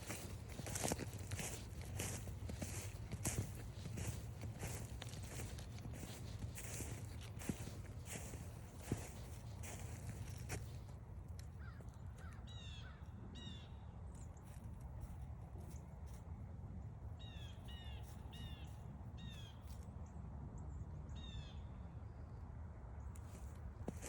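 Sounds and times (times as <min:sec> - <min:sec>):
low outdoor rumble: 0:00.0 - 0:24.0
crow cawing: 0:11.6 - 0:13.0.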